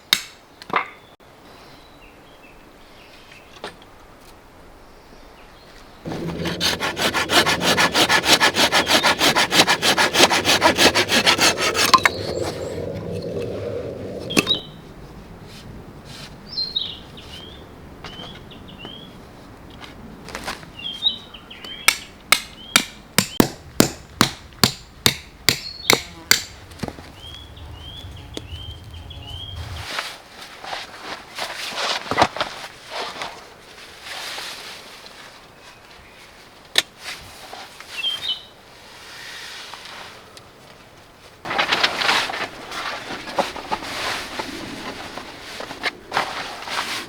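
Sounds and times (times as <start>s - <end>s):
hand saw cutting wood: 6.1s - 12.5s, 22.4s - 26.6s
birds chirping: 11.6s - 14.8s, 25.3s - 29.8s
sharp knocks on wood: 22.4s - 26.6s.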